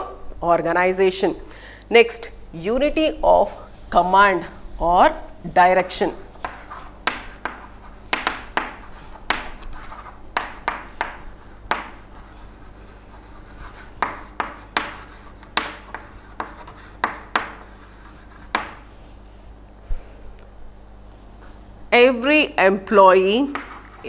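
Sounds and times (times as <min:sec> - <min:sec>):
faint electrical hum: 0:00.0 - 0:24.0
pen scratching on paper: 0:06.4 - 0:18.8, 0:23.5 - 0:24.0.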